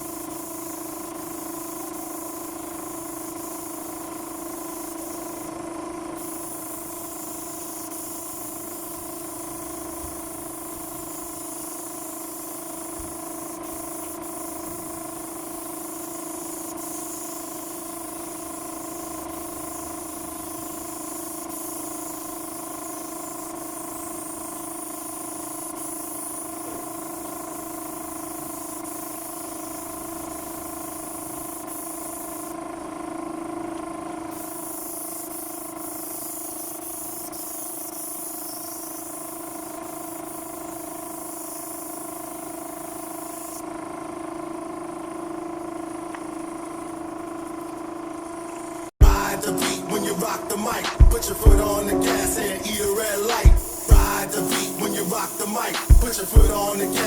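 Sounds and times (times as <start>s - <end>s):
spray gun hissing: 0.0s - 32.6s, 34.3s - 43.6s, 48.6s - 57.0s
steady machine hum: 49.0s - 57.0s.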